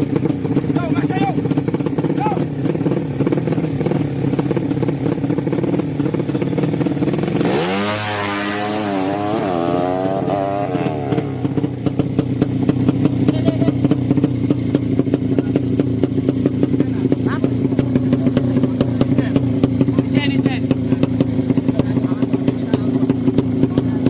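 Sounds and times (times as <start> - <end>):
lumpy engine ticking: 0.0 - 24.0
motorcycle engine revving: 0.0 - 24.0.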